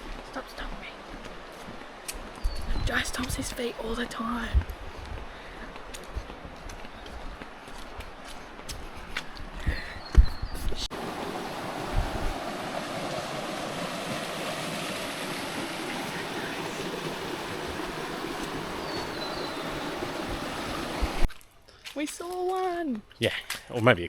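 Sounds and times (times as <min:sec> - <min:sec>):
river water rushing: 0:10.9 - 0:21.3.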